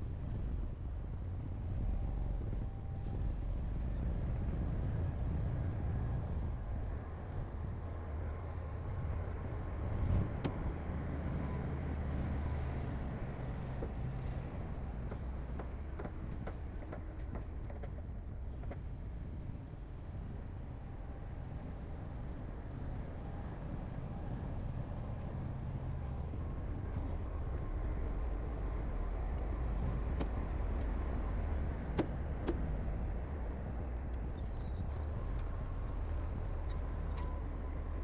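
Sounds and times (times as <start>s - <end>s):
diesel engine rumbling: 8.9s - 17.9s, 24.0s - 38.0s.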